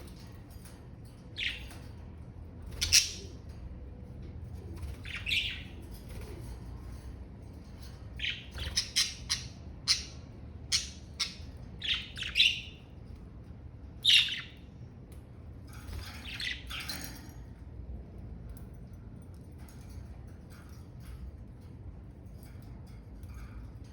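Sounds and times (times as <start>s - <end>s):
budgerigars chirping and squawking: 1.2s - 1.9s, 2.6s - 3.5s, 4.8s - 6.6s, 8.1s - 12.9s, 14.0s - 14.7s, 15.9s - 17.1s.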